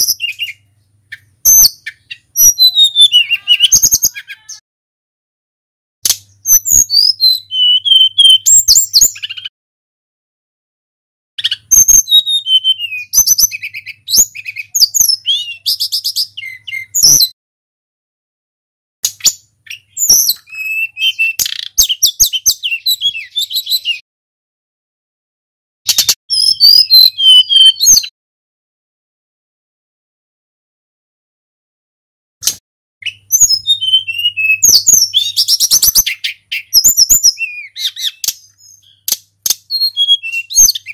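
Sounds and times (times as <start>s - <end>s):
flycatcher singing whistled phrases: 0.0s - 0.6s, 1.5s - 4.6s, 6.4s - 9.5s, 11.4s - 17.4s, 19.2s - 24.0s, 26.0s - 28.1s, 33.0s - 40.9s.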